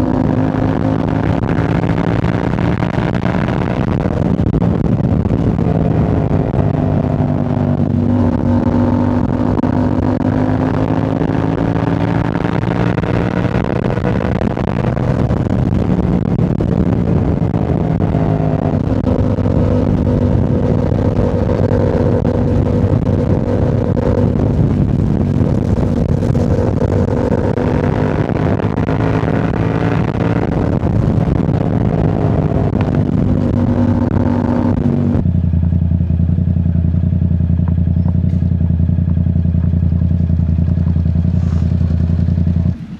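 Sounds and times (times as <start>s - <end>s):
motorcycle engine cruising: 0.0s - 42.9s.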